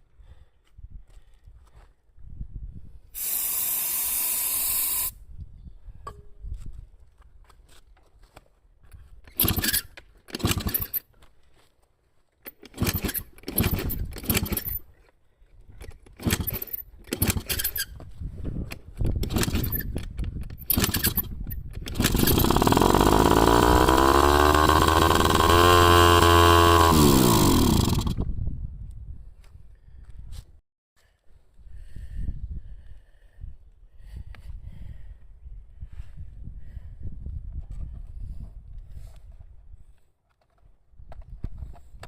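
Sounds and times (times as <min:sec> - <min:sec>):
scooter engine cranking: 0:09.3 - 0:11.0, 0:12.5 - 0:14.8, 0:16.1 - 0:17.9, 0:19.1 - 0:28.2
scooter engine revving: 0:21.9 - 0:28.2.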